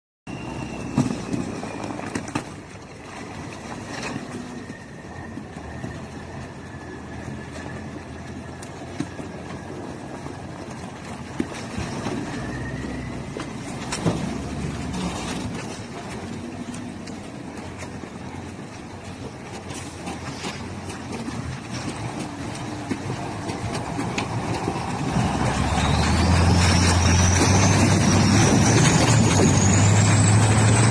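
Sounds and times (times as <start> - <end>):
truck diesel engine running: 22.0 - 30.9.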